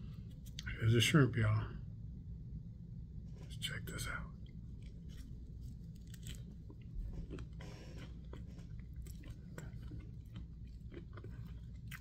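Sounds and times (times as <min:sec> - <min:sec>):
person chewing fried food: 0:04.4 - 0:12.0.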